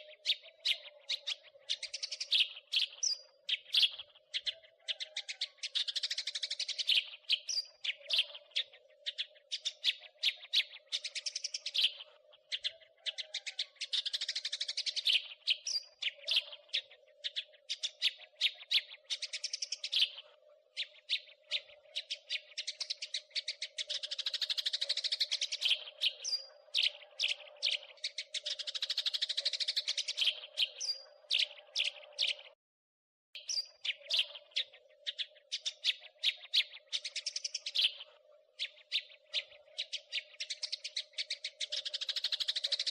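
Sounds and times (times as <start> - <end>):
sparrow chirping: 0.0 - 32.6, 33.4 - 42.9.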